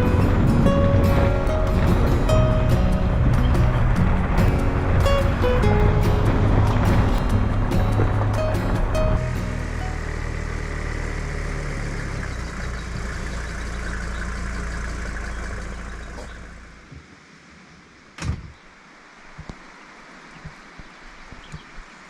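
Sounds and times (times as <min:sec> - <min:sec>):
diesel engine idling: 0:00.0 - 0:16.8.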